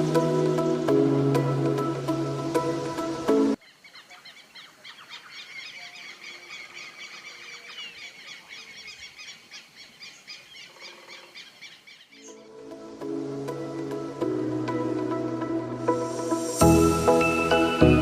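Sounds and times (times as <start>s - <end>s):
music: 0.0s - 3.6s, 12.2s - 18.0s
birds chattering in chorus: 3.6s - 12.4s.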